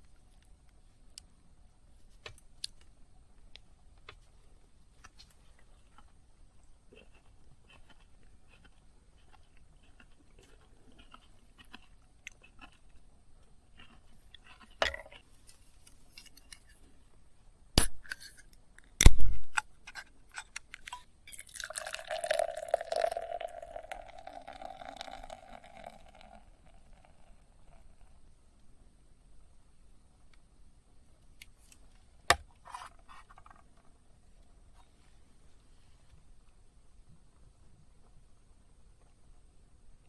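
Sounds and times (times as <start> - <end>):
liquid bubbling in pot: 21.3 - 27.8.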